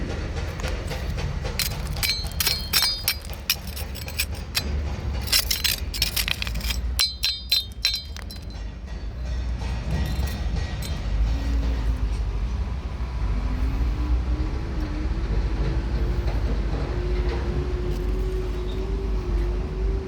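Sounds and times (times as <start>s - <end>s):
steady low rumble: 0.0s - 14.6s
sharp ringing clinks and taps: 0.5s - 11.8s.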